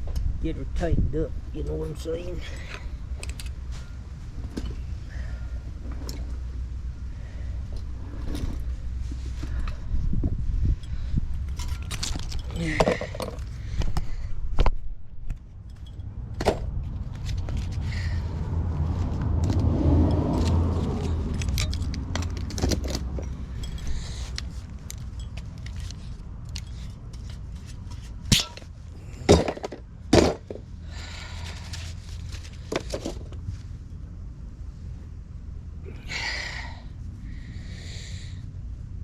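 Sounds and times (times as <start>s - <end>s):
steady low rumble: 0.0s - 39.0s
tools and pipe scraps clattering: 10.8s - 13.6s, 20.4s - 33.4s.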